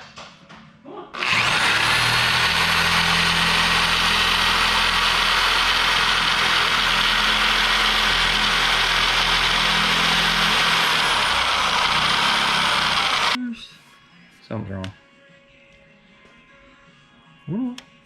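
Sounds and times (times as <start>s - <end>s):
motor running with hiss and hum: 1.2s - 13.4s.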